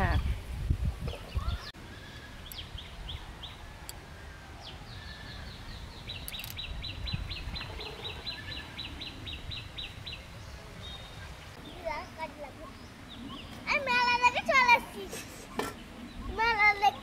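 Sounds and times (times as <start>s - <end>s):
small bird chirping: 1.2s - 4.0s, 4.6s - 10.2s.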